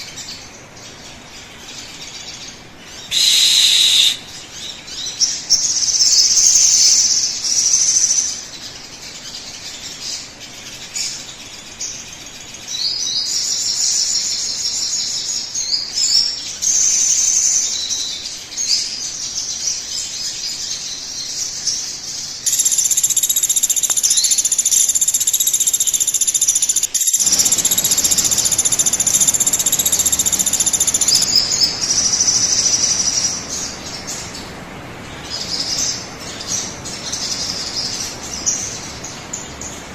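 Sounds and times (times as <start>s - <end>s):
bird chirps and trills: 0.0s - 39.9s.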